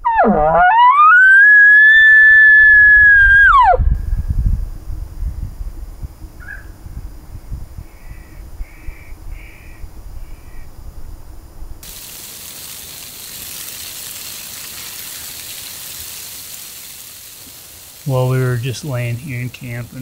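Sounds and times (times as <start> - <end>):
wind buffeting microphone: 3.7 - 11.9
steady hiss: 11.0 - 20.0.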